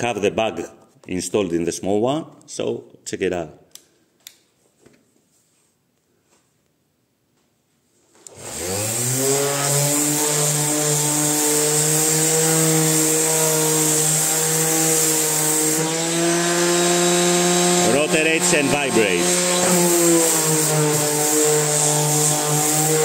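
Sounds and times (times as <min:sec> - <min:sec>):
orbital sander motor whining: 0:08.3 - 0:23.0.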